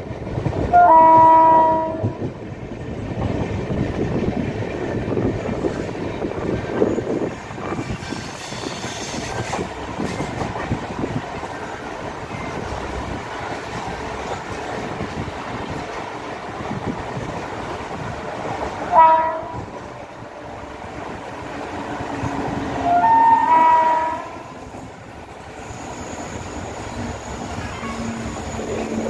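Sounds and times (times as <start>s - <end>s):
train wheels rumbling on rails: 0.0s - 29.0s
train horn blast: 0.7s - 2.2s, 18.9s - 19.7s, 22.8s - 24.6s.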